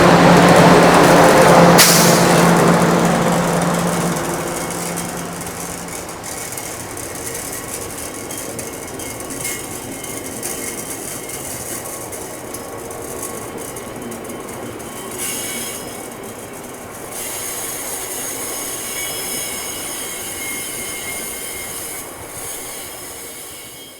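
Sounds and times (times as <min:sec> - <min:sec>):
freight wagons rolling: 0:00.0 - 0:23.8
train wheel squeal: 0:00.0 - 0:23.9.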